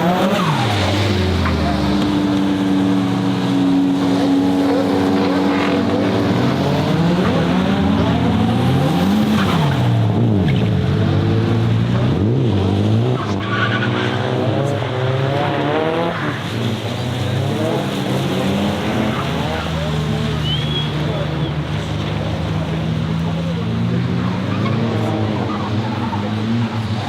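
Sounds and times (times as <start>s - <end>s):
car engine revving hard: 0.0s - 27.0s
tyres squealing: 17.4s - 27.0s.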